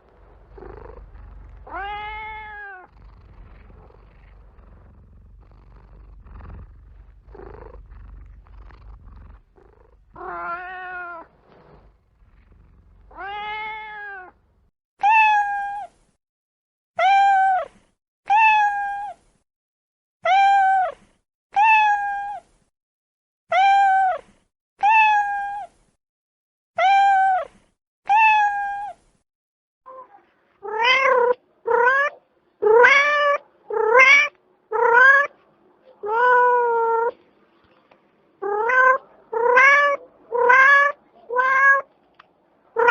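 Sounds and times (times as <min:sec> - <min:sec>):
faint low rumble: 0:00.0 - 0:14.7
cat meowing: 0:00.2 - 0:05.0, 0:10.1 - 0:11.3, 0:13.1 - 0:14.4, 0:38.4 - 0:41.9.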